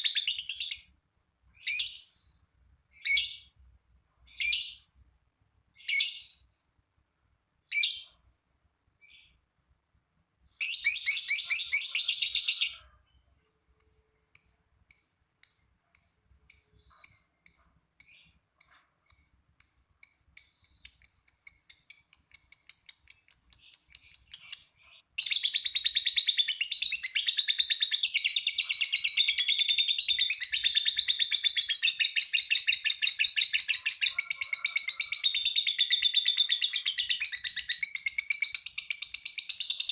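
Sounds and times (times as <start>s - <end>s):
lovebird chirping and trilling: 0.0s - 0.9s, 1.6s - 3.6s, 4.3s - 4.9s, 5.8s - 6.5s, 7.7s - 8.2s, 9.0s - 9.4s, 10.5s - 13.2s, 13.8s - 39.9s.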